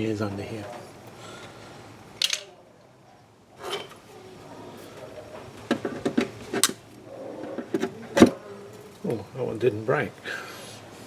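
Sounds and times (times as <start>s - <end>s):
plastic clips clicking and knocking: 2.2s - 2.5s.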